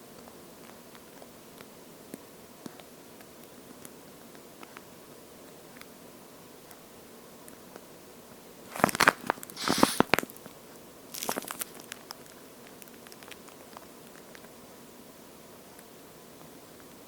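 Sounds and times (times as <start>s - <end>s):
squishy toy squelching: 8.7s - 10.2s.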